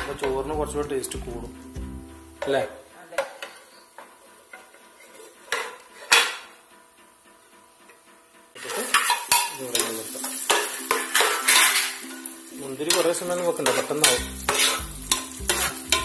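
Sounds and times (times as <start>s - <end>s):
metal spoon scraping a pot: 3.4s - 6.5s, 8.6s - 12.2s, 12.9s - 16.0s
raisins sizzling in hot oil: 8.6s - 16.0s.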